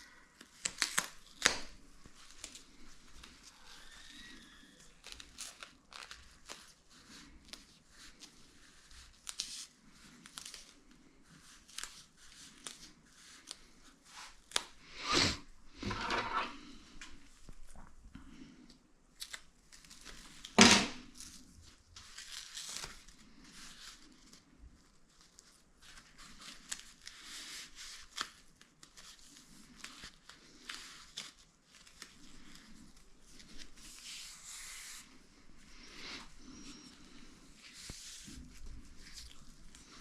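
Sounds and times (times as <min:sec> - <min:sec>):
rustling of sealing strip: 0:19.2 - 0:40.0.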